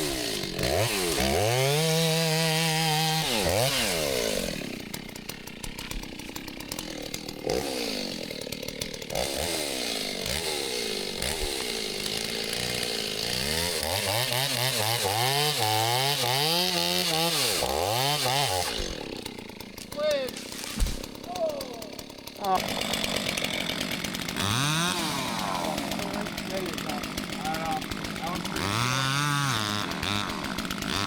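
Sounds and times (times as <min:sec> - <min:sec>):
two-stroke chainsaw revving: 0:00.0 - 0:31.0.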